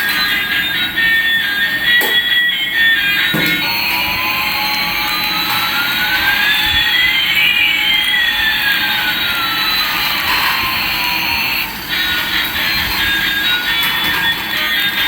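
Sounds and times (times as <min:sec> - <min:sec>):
jet engine hiss and whine: 0:00.0 - 0:15.0.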